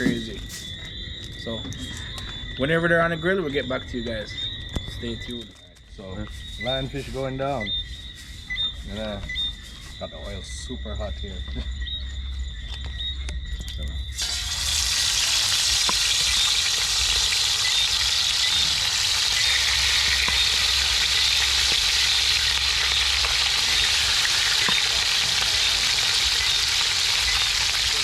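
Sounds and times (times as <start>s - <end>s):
fish sizzling in hot oil: 14.2s - 28.0s
oil crackling: 14.2s - 28.0s.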